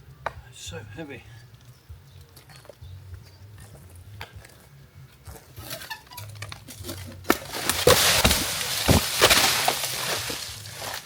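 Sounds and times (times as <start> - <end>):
wood cracking: 5.6 - 11.0
heavy thuds: 6.8 - 11.0
tree branch crashing through leaves: 6.8 - 11.0.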